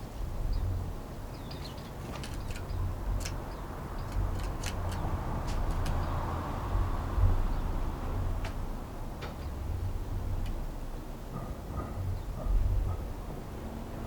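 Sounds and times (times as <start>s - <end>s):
songbird calls: 0.0s - 5.1s.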